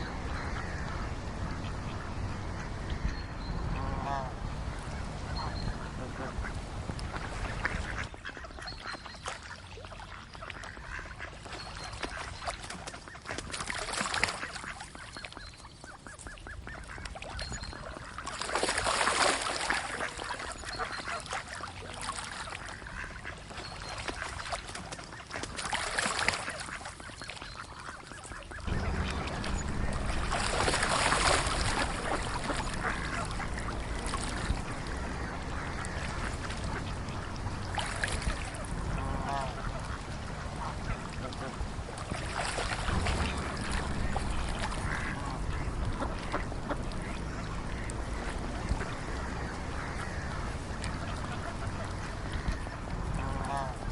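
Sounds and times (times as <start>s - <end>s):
ducks quacking: 0.0s - 53.9s
low rumble: 28.6s - 41.8s, 42.7s - 53.8s.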